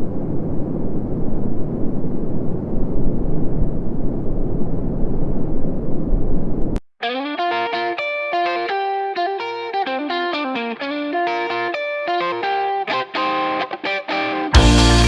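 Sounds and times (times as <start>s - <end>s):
gusty wind on microphone: 0.0s - 6.8s.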